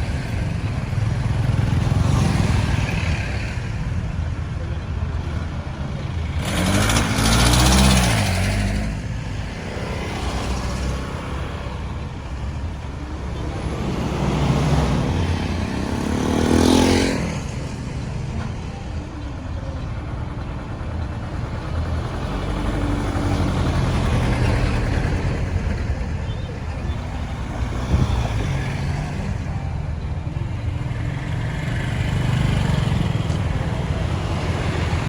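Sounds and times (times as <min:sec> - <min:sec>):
road traffic rumble: 0:00.0 - 0:35.0
vehicle passing close: 0:06.0 - 0:18.0.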